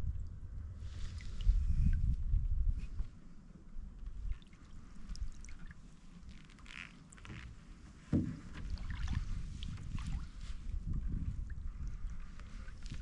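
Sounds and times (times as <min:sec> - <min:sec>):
low rumble: 0:00.0 - 0:04.3
water dripping off paddle: 0:04.3 - 0:06.4
thump: 0:08.1 - 0:08.6.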